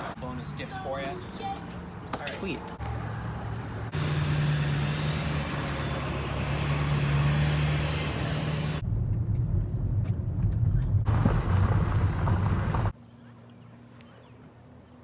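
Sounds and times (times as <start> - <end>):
road noise: 0.0 - 15.0
car engine hum: 2.8 - 13.0.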